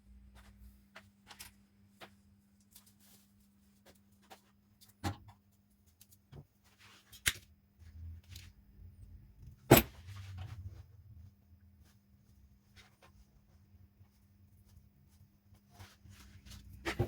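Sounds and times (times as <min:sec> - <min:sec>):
low rumble of handling: 0:07.8 - 0:17.0.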